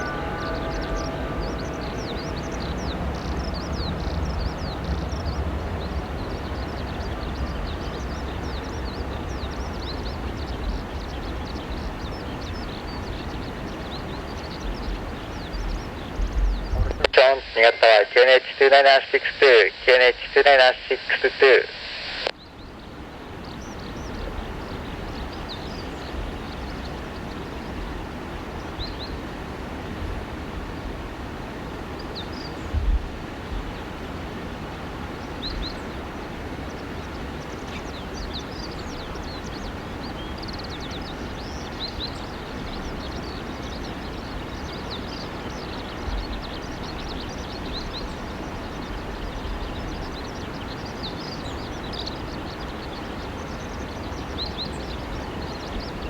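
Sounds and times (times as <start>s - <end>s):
small birds chirping: 0.0s - 28.0s, 35.1s - 56.0s
steady rushing background noise: 16.3s - 22.3s
wind thumps on microphone: 32.7s - 33.7s.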